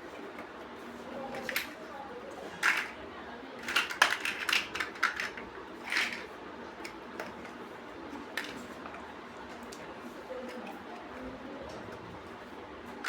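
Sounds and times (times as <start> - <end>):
plastic bricks clicking and clattering: 1.3 - 1.8, 2.6 - 3.0, 3.6 - 7.5, 8.3 - 8.6.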